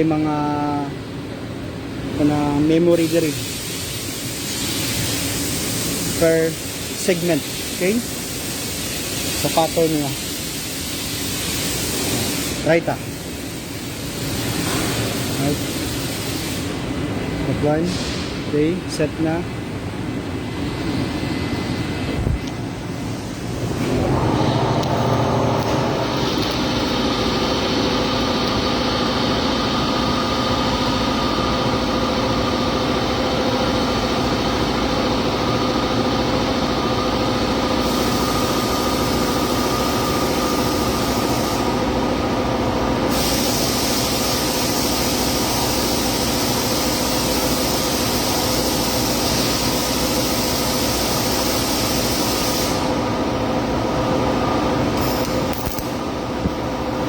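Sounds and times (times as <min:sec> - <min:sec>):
machine hum: 0:00.9 - 0:57.0
welding arc hissing and crackling: 0:02.8 - 0:16.7, 0:36.9 - 0:42.0, 0:42.9 - 0:53.0, 0:55.0 - 0:56.6.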